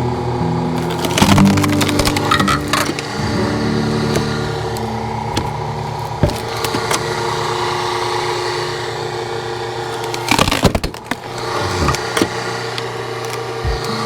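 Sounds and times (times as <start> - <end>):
small petrol engine running: 0.0 - 14.0
wood cracking and knocking: 0.8 - 3.4, 4.0 - 7.4, 9.2 - 12.4, 13.2 - 14.0.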